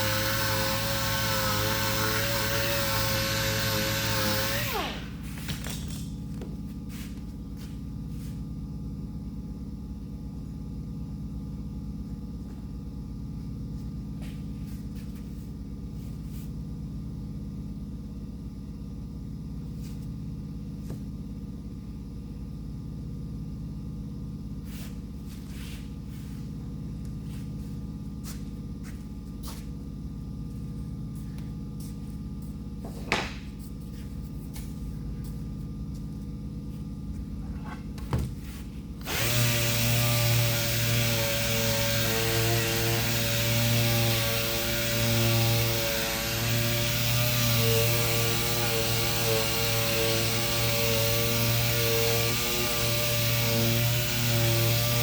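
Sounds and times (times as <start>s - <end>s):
low machine hum: 0.0s - 55.0s.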